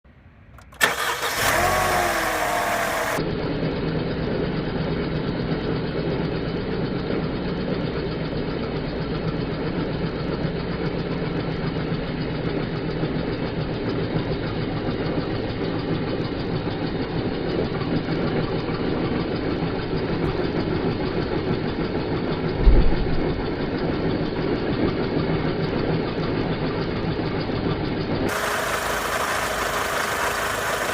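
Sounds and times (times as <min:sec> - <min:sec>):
car engine starting and idling: 0:00.1 - 0:30.9
low thump: 0:22.6 - 0:23.4.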